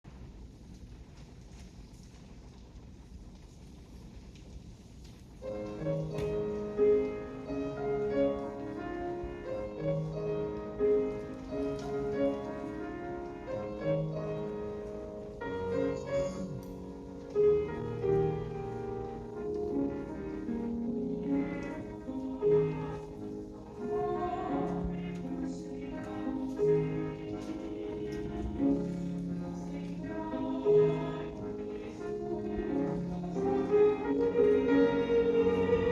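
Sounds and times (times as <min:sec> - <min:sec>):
flowing piano accompaniment: 0:00.0 - 0:35.9.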